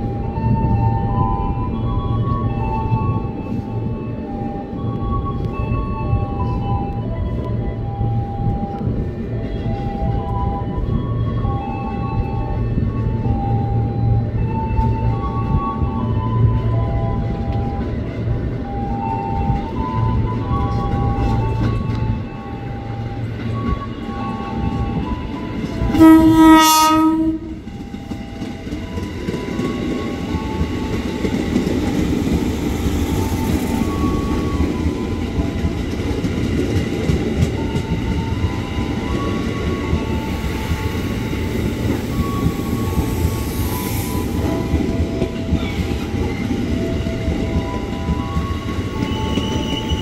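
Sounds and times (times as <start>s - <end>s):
train wheels rumbling on rail: 0.0s - 50.0s
train horn blast: 25.8s - 27.9s.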